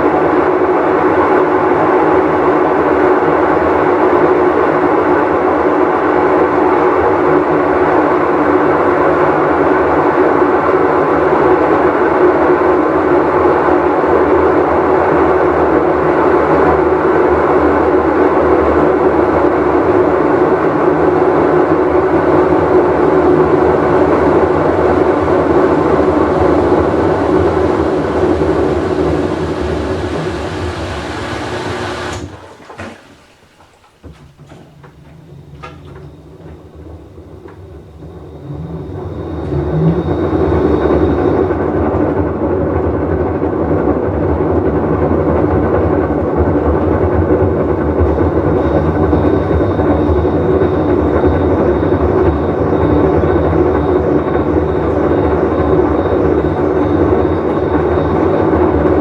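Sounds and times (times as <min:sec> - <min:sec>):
washing machine rumbling: 0:22.2 - 0:59.0
tub bearing hum: 0:23.9 - 0:59.0.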